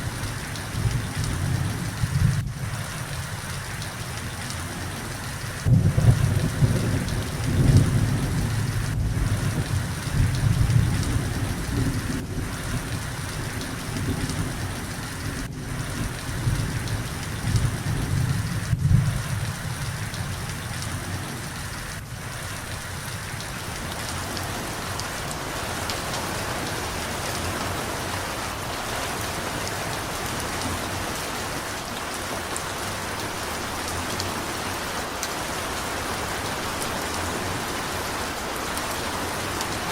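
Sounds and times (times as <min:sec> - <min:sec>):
steady rain: 0:00.0 - 0:39.9
rolling thunder: 0:05.6 - 0:20.0.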